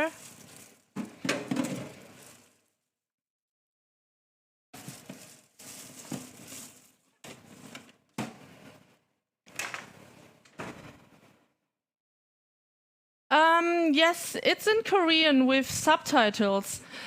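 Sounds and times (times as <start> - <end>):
lettuce leaves crunching: 0.0 - 0.9, 4.8 - 7.0.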